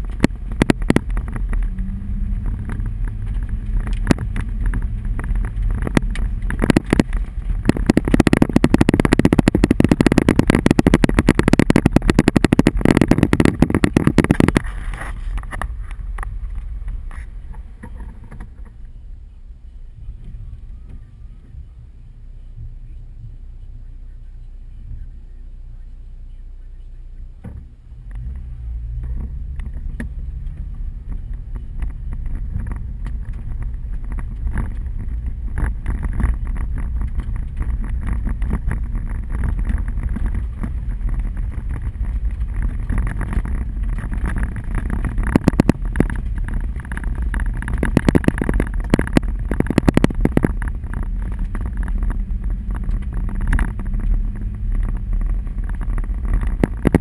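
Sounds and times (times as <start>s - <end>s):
hail ticking on car body: 0.0s - 18.8s, 28.1s - 57.0s
road and engine rumble: 0.0s - 57.0s.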